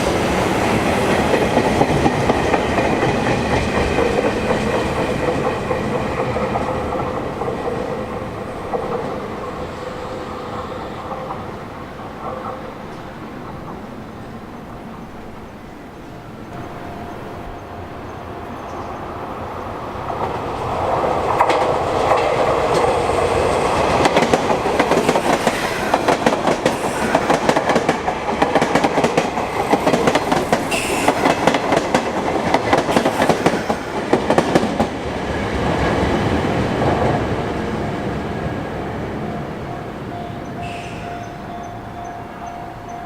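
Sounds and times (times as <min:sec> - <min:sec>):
wheels clacking over rail joints: 0:00.0 - 0:14.1, 0:18.6 - 0:37.6
train rumble: 0:00.0 - 0:43.0.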